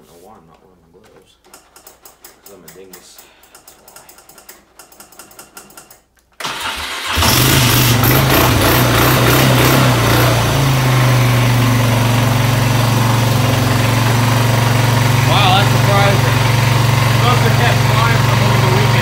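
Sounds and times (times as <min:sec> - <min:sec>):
engine starter cranking: 0:03.0 - 0:10.4
engine idling: 0:06.5 - 0:19.0.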